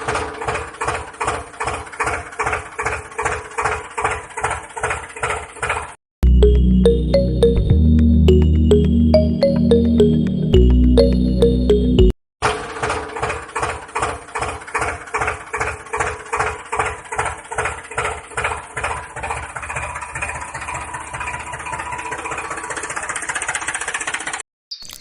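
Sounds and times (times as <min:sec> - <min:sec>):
small water pump motor knocking: 0:00.0 - 0:05.9, 0:12.4 - 0:24.4.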